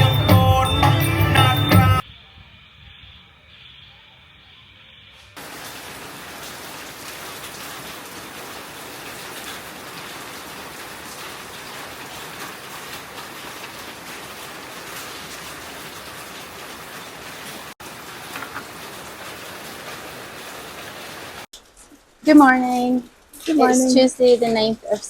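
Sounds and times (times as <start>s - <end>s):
steady rain falling: 5.4s - 25.0s.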